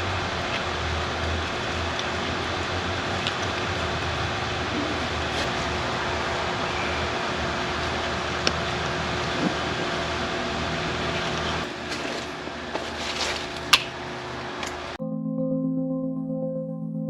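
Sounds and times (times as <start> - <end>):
steady rushing outdoor noise: 0.0 - 15.0
background music: 15.0 - 17.0.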